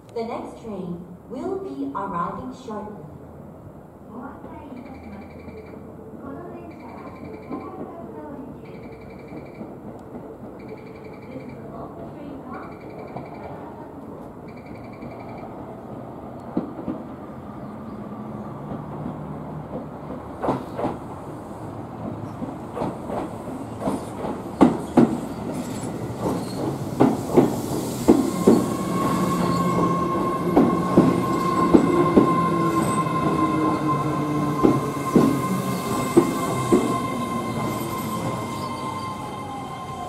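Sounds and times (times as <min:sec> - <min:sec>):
train wheels clacking over joints: 0:08.6 - 0:11.6, 0:18.6 - 0:21.1, 0:22.0 - 0:39.0
train high squeal: 0:23.9 - 0:40.0.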